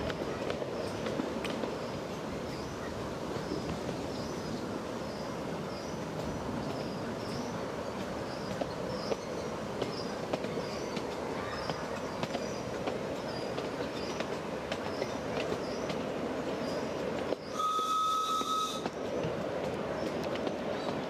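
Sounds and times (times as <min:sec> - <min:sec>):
train whistle blast: 0:17.5 - 0:18.9.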